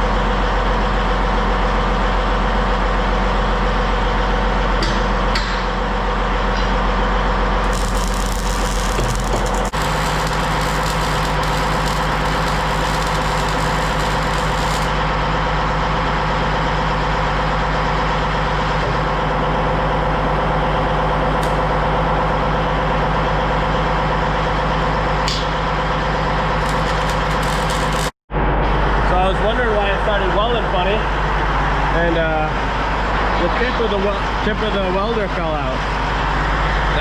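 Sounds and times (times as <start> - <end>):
machine humming: 7.6 - 15.0, 26.6 - 28.2.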